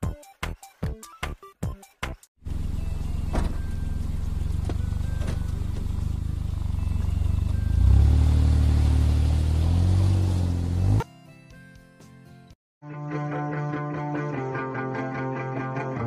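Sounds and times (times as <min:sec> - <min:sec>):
car engine humming: 0:02.4 - 0:11.0.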